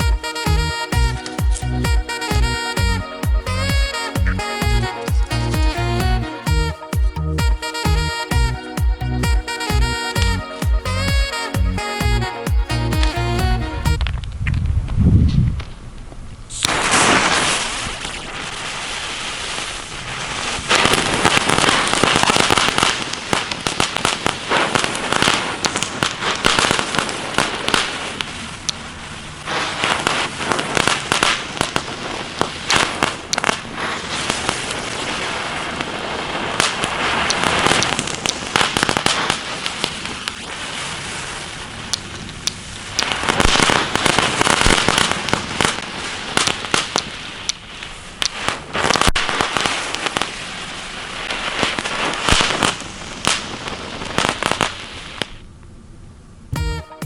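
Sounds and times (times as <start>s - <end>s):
crackling firecrackers: 0.0s - 4.9s, 15.6s - 55.5s.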